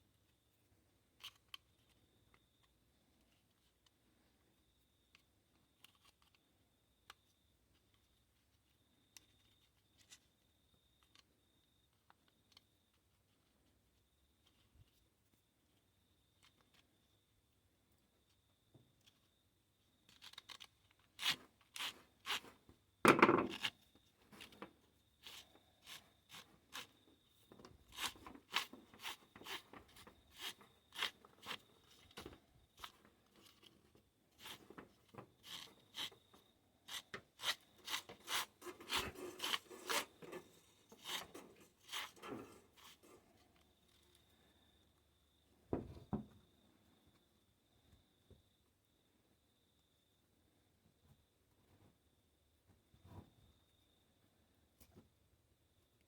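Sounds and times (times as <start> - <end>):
recoil starter clicks and rubbing: 36.9 - 43.2
loud scraping rub: 37.8 - 43.2.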